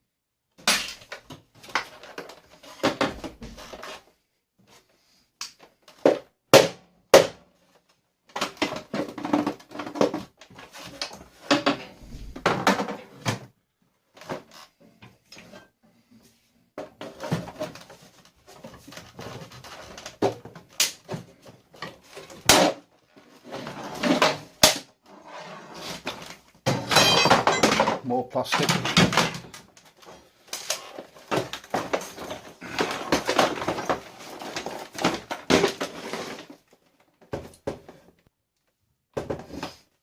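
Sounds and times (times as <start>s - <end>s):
plastic parts knocking and rattling: 0.6s - 4.0s, 5.6s - 13.5s, 16.8s - 23.3s, 26.0s - 38.2s.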